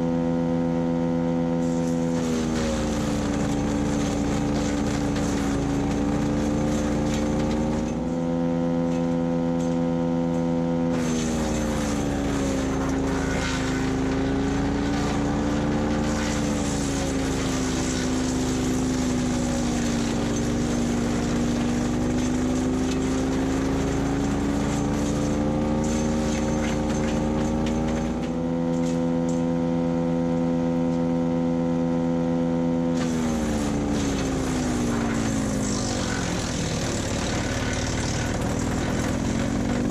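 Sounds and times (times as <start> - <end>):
wood chipper engine running: 0.0 - 39.9
branches crackling and crunching: 1.8 - 7.9, 10.9 - 28.3, 33.0 - 39.9.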